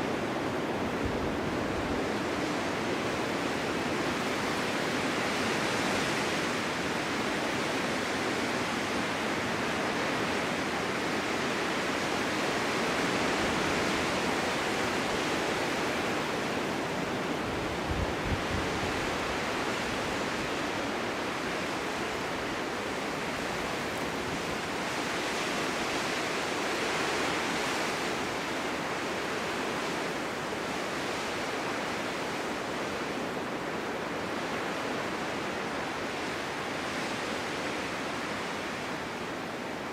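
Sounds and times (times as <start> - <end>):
wind blowing through forest: 0.0 - 39.9
wind buffet on microphone: 7.6 - 26.3.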